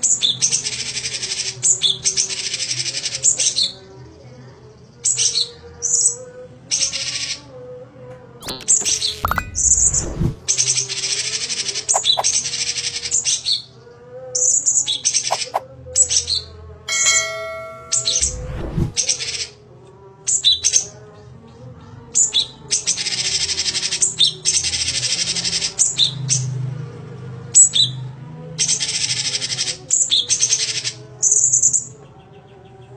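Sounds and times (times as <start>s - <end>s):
bird scratchy chattering song: 11.9s - 12.3s.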